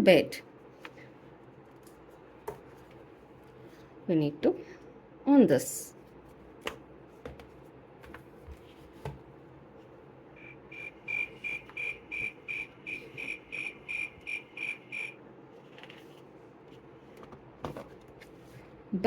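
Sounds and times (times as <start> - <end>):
recorded cricket chirping: 10.4 - 15.2
soft clicks from handling book: 15.7 - 16.2.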